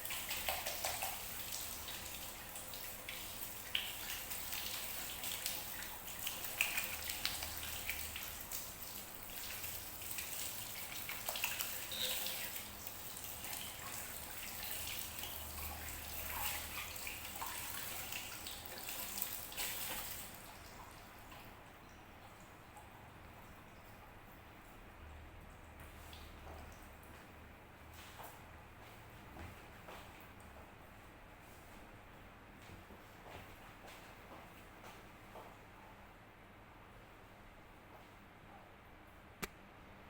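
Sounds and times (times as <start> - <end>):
running water splashing: 0.0 - 21.6
water drips and splatters: 0.0 - 27.3.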